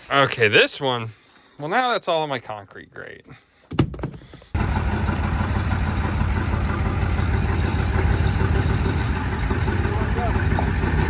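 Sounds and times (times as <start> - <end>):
motor-driven machine running: 4.6 - 11.0.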